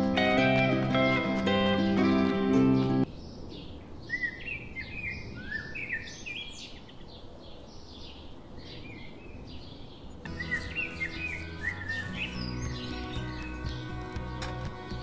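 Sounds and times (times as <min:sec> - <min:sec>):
small birds chirping: 0:02.6 - 0:14.2.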